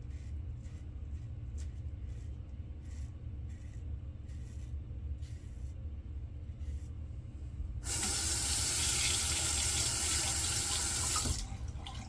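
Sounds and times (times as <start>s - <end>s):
tap water running into sink: 7.8s - 12.0s.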